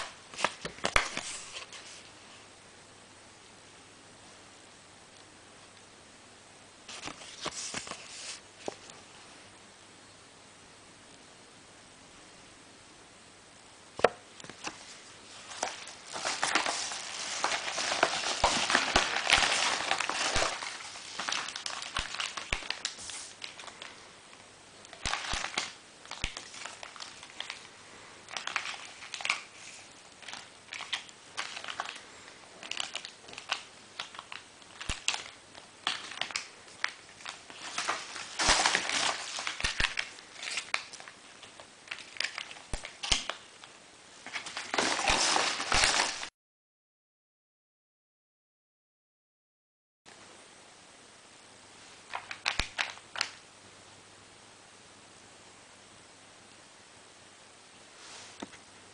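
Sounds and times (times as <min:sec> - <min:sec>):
packaging crinkling: 0:00.0 - 0:02.0, 0:14.4 - 0:46.3, 0:52.1 - 0:53.4.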